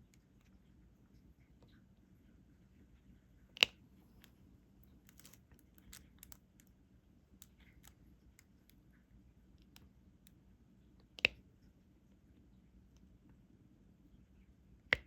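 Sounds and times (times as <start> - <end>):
small clicks and taps: 5.0 - 6.7, 11.1 - 11.4.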